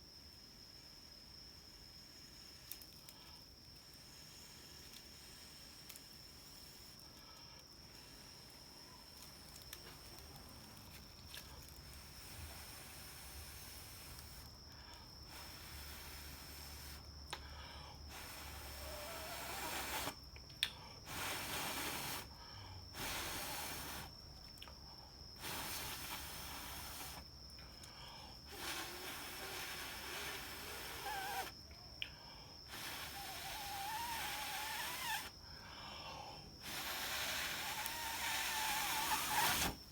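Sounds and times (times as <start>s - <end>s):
faint hiss: 0.0s - 39.9s
puffs of breath: 14.7s - 24.1s, 35.2s - 37.5s.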